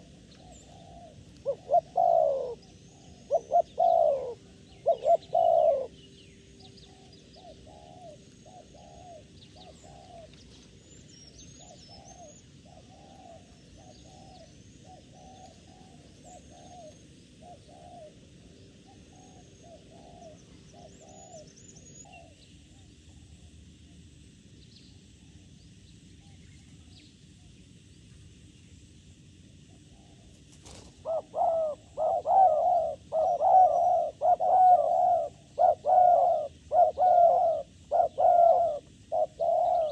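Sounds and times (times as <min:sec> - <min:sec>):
doves cooing: 0:00.0 - 0:06.0, 0:06.7 - 0:22.4, 0:29.7 - 0:39.9
small birds chirping: 0:00.0 - 0:23.4, 0:29.7 - 0:39.9.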